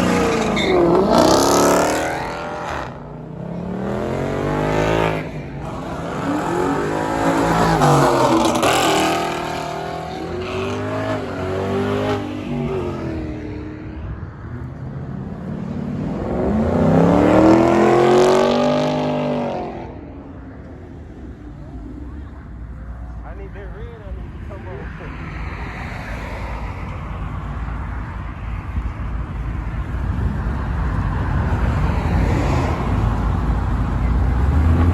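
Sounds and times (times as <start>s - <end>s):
car engine revving: 0.0s - 13.9s, 14.7s - 20.4s.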